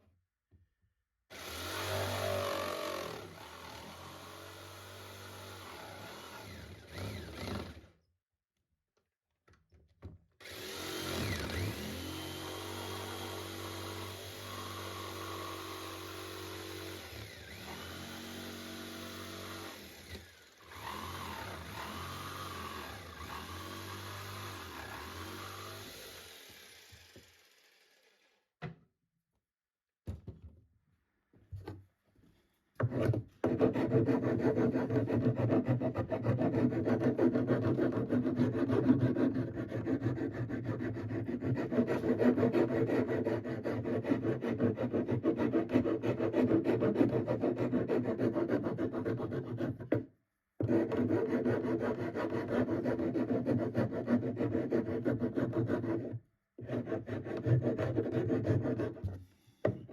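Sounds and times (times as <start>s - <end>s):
electric power tool motor: 1.3s - 7.9s, 10.4s - 28.4s.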